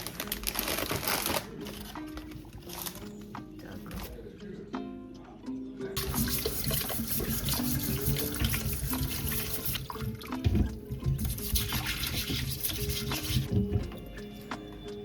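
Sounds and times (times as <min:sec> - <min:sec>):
soft background music: 0:00.0 - 0:15.0
running water: 0:06.0 - 0:14.1.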